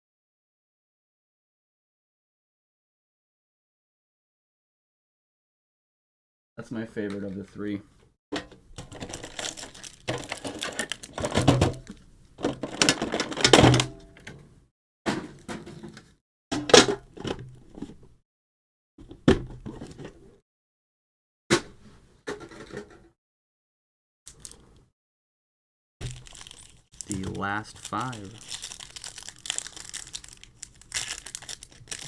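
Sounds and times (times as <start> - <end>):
plastic packaging crinkling: 8.8 - 13.4, 24.3 - 24.6, 26.0 - 32.0.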